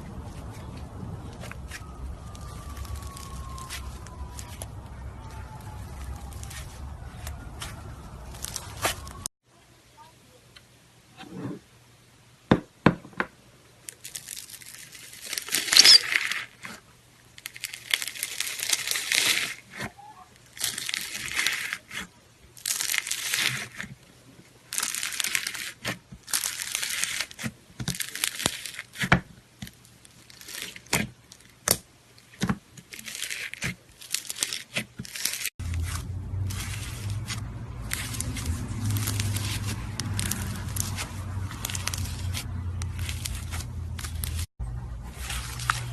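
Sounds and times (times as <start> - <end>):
slime crackling and tearing: 1.2 - 9.3, 13.9 - 24.0, 24.7 - 44.5
low hum: 35.6 - 45.9.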